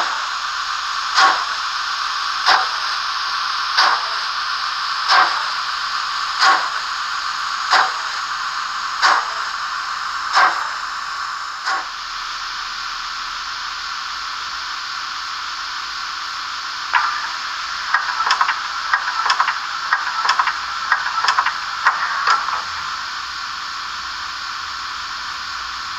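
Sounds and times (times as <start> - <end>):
steady steam hiss: 0.0 - 25.9
steam locomotive chuffs: 0.0 - 25.9
irregular clicks and knocks: 16.9 - 22.7.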